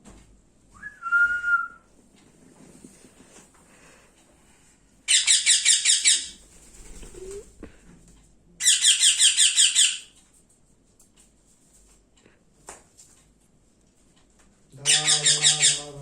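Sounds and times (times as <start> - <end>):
baby parrot begging calls: 5.1 - 6.4, 8.6 - 10.1, 14.8 - 16.0.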